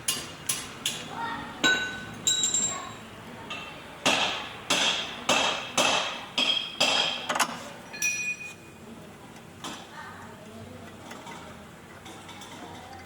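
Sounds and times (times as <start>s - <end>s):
hammer striking metal: 4.0s - 7.3s.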